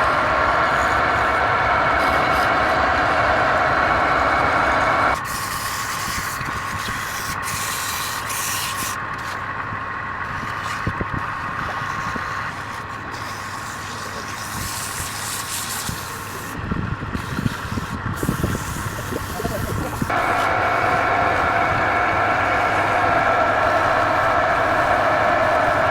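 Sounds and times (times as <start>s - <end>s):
turning tool cutting wood: 0.0s - 9.5s, 10.2s - 25.9s
wood lathe running: 0.0s - 25.9s.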